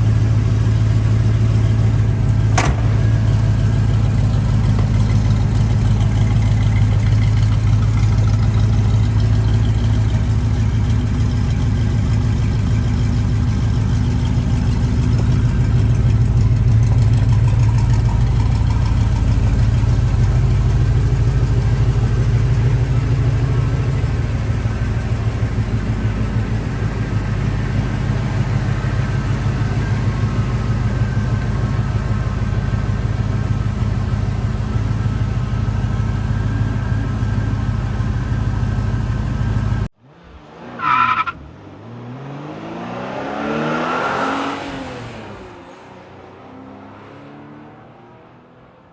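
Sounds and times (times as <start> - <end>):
car engine idling: 0.0 - 41.5.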